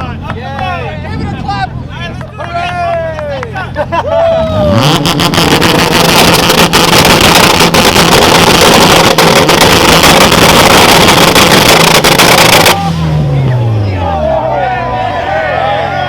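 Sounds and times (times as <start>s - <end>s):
exhaust crackling and popping: 0.0s - 13.5s
car engine on launch limiter: 4.3s - 16.0s.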